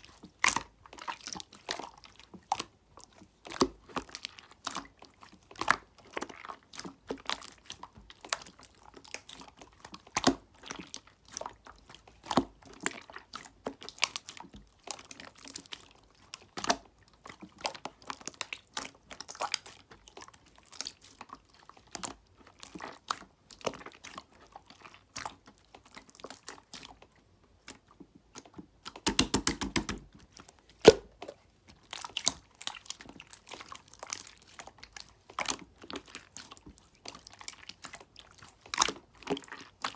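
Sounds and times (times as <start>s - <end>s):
slime squished by hand: 27.6s - 39.9s.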